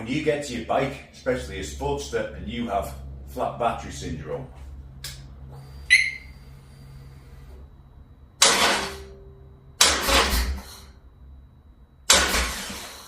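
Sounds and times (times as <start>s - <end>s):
motorcycle engine cranking: 9.8s - 10.7s, 12.1s - 13.0s.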